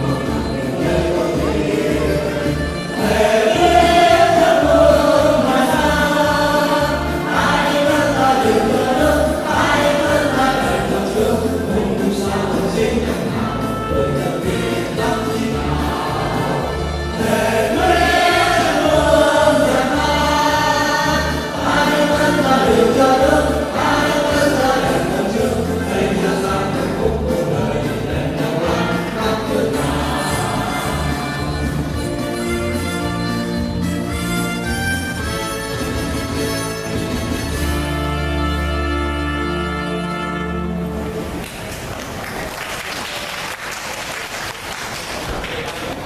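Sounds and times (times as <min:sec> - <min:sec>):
choir singing in unison: 0:00.0 - 0:32.0
instrumental backing with bass line: 0:00.0 - 0:41.4.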